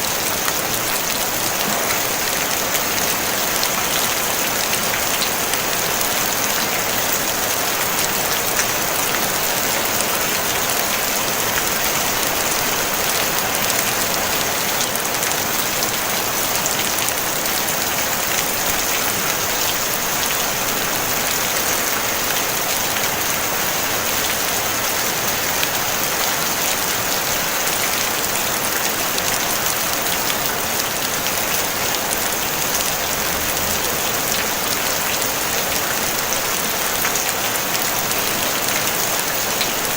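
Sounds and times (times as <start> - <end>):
rain on a tin roof: 0.0 - 39.9.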